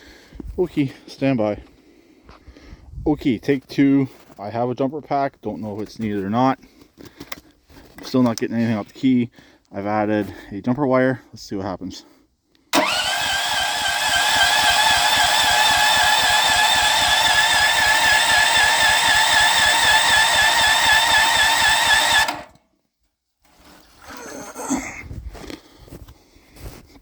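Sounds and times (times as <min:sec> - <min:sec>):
starter motor cranking engine: 0:12.7 - 0:22.6.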